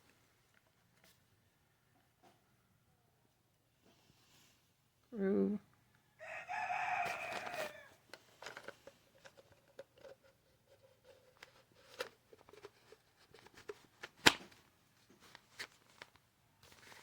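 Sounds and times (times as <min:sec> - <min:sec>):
light clicks and rustles: 0:07.1 - 0:17.0.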